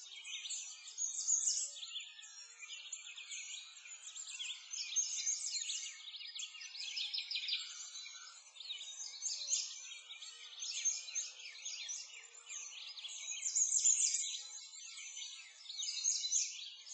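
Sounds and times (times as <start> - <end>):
small birds chirping and singing: 0.0 - 16.9.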